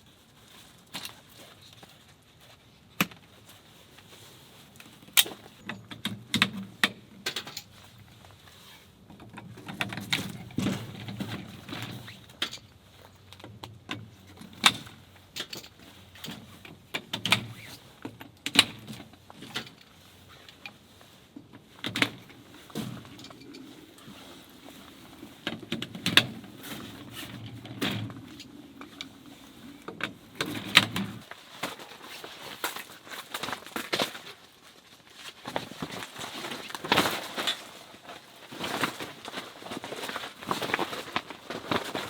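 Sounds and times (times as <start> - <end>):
camping gear clattering: 0.0 - 42.0.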